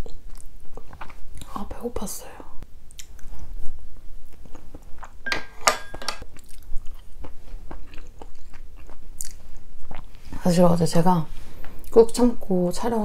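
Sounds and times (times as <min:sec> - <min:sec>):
wet chewing: 0:06.2 - 0:10.2.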